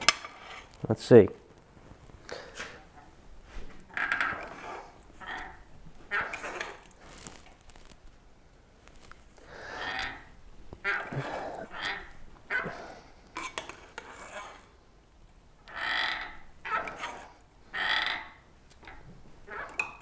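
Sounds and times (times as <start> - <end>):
hand shrinker creaking strokes: 3.8 - 7.6, 9.4 - 14.7, 15.6 - 20.0.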